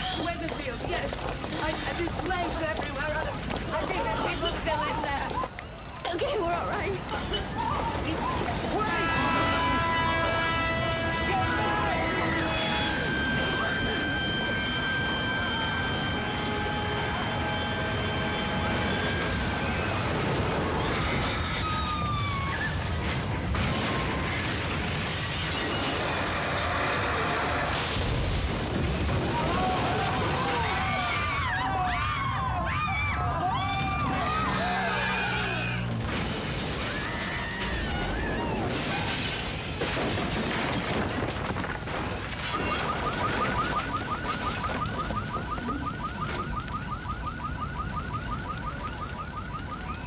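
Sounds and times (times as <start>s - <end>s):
siren-like wailing tones: 6.5s - 36.0s, 36.8s - 39.3s, 42.4s - 50.0s
roar of large fire: 8.2s - 31.4s
car alarm chirping: 11.8s - 20.4s, 42.4s - 50.0s
sharp cracks and pops: 36.0s - 47.4s.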